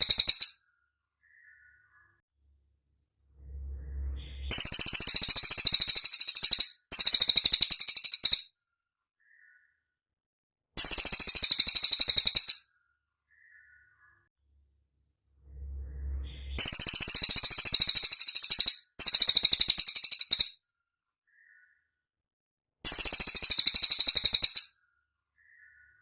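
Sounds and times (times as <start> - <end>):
bird high rattling trill: 0.0 - 0.6, 4.4 - 8.4, 16.5 - 20.5, 22.9 - 24.7
short low rumble: 2.4 - 4.8, 14.9 - 16.8.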